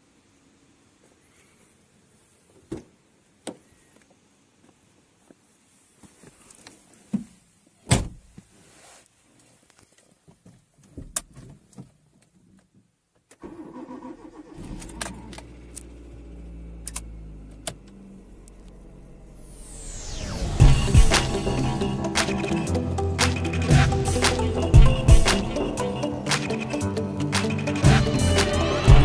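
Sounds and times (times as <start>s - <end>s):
vehicle engine starting and running: 13.4s - 29.0s.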